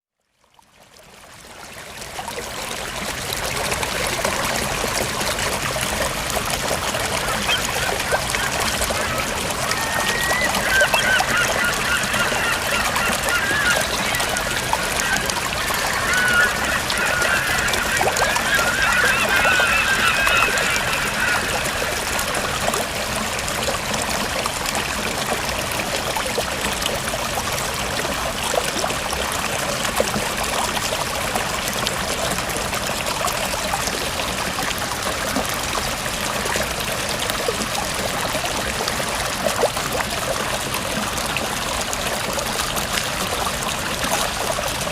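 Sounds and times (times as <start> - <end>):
river water rushing: 1.8 - 44.9
birds calling: 7.2 - 22.6.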